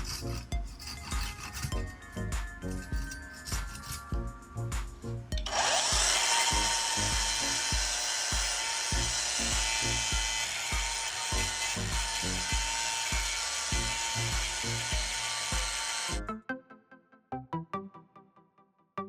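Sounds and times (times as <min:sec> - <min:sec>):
hand filing on wood: 0:00.0 - 0:01.7, 0:03.0 - 0:04.1
power tool running on wood: 0:00.0 - 0:01.7, 0:05.4 - 0:16.2
music with steady beat: 0:00.0 - 0:16.4.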